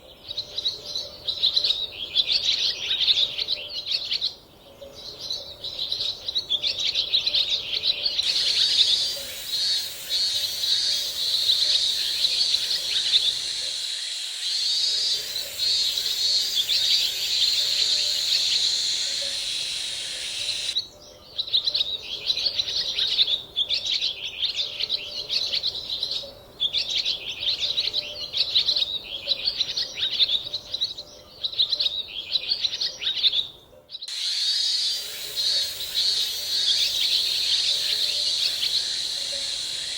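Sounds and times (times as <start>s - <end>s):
birds chirping: 7.5s - 22.0s, 34.0s - 39.9s
steady high hiss: 8.2s - 20.8s, 34.1s - 39.9s.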